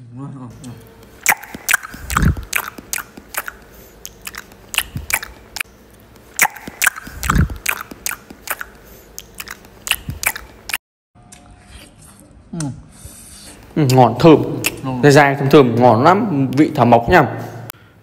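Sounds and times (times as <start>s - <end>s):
crunchy chewing clicks: 0.6s - 11.4s, 13.6s - 14.9s
wet mouth noises: 0.6s - 15.0s.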